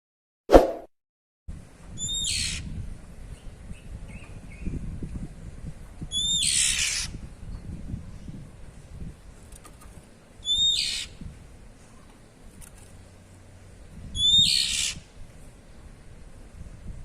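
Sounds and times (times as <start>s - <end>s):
bird harsh raspy calls: 6.1s - 7.1s, 10.4s - 11.2s, 14.2s - 15.1s.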